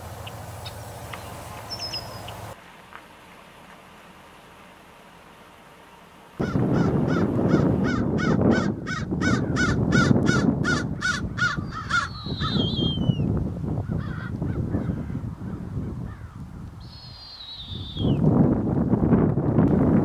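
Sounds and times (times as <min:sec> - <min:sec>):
bird high falling whistles: 0:01.7 - 0:02.4, 0:12.0 - 0:13.3, 0:16.8 - 0:18.2
bird harsh calls: 0:06.4 - 0:13.2, 0:16.1 - 0:18.2
low wind rumble: 0:06.4 - 0:20.0.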